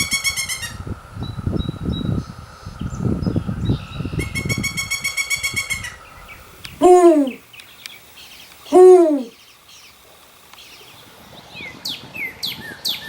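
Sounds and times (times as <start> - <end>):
bird calls: 6.8 - 7.4, 8.7 - 9.3.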